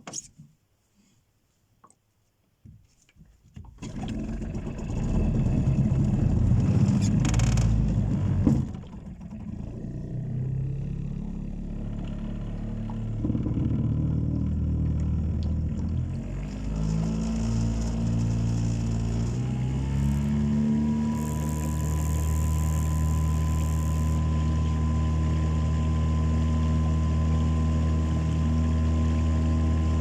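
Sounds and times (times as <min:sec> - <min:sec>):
outboard motor rumbling: 0:03.6 - 0:30.0.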